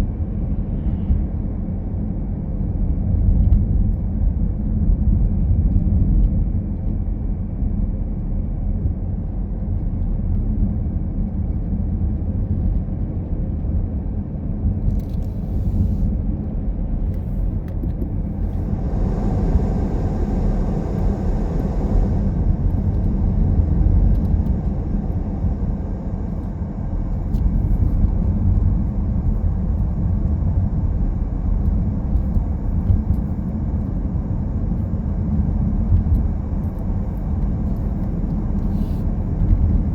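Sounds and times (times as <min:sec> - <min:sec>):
car road and engine rumble: 0:00.0 - 0:39.9
rushing hiss: 0:18.3 - 0:26.4.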